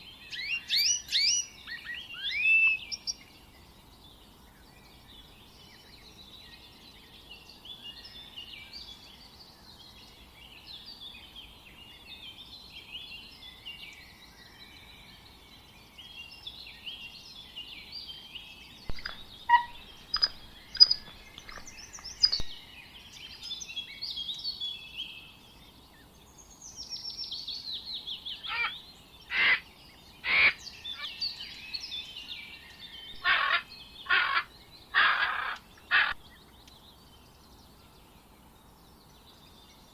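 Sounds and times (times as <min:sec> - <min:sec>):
birds chirping chorus: 0:00.0 - 0:39.9
loud sharp bird calls: 0:00.3 - 0:03.2, 0:18.9 - 0:23.4, 0:28.4 - 0:31.6, 0:32.7 - 0:36.4
fast falling bird trill: 0:18.9 - 0:22.4.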